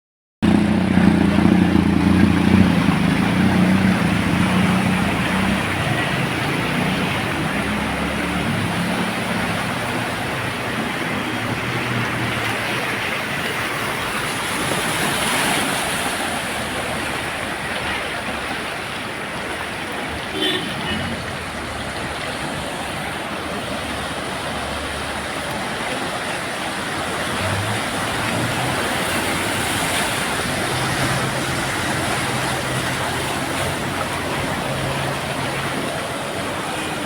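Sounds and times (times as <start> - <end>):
vehicle engine running: 0.4 - 11.2
steady rushing water noise: 0.4 - 37.0.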